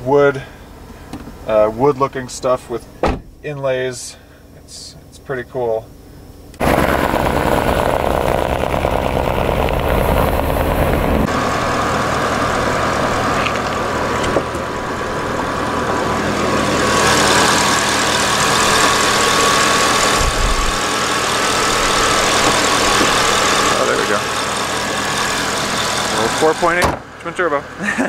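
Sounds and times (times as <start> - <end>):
car engine running steadily: 5.9 - 28.0
loud rushing noise: 6.6 - 26.8.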